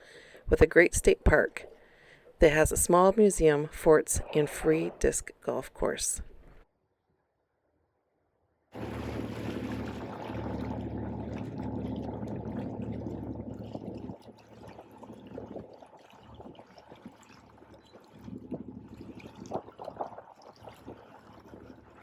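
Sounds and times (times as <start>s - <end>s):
boat engine running: 8.8s - 22.0s
water rushing along hull: 8.8s - 22.0s.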